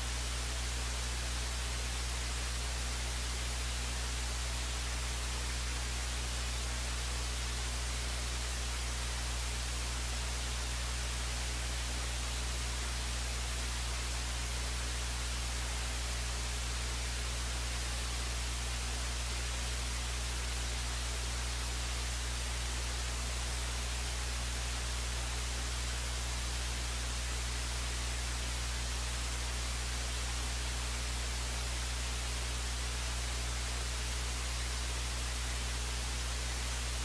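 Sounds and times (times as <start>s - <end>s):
electronic hiss and static: 0.0s - 37.0s.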